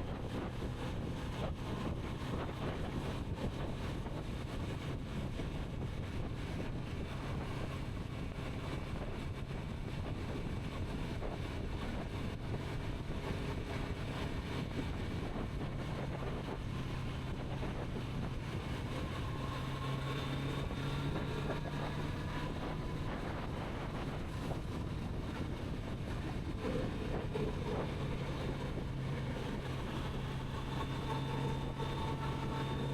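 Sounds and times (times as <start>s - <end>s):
wind noise on microphone: 0.0s - 32.9s.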